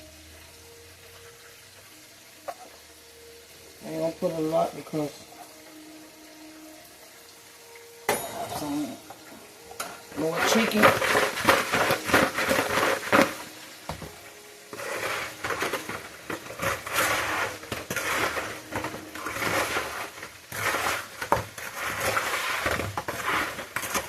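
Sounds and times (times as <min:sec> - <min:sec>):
utensils scraping and clinking on pan: 0:08.1 - 0:14.1, 0:14.7 - 0:24.0.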